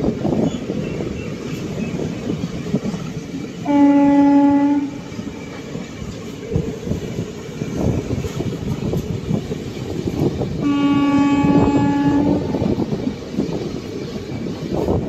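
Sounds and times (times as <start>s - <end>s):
train rumble and wheel clatter: 0.0s - 15.0s
train horn blast: 3.6s - 5.1s, 10.6s - 12.6s.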